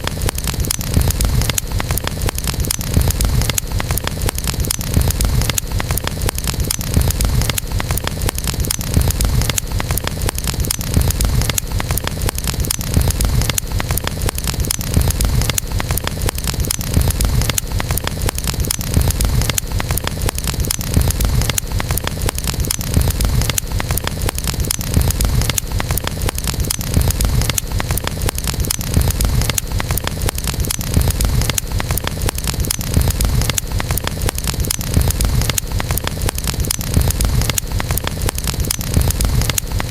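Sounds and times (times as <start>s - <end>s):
burning wood crackling: 0.0s - 39.9s
campfire flames rumbling: 0.0s - 39.9s.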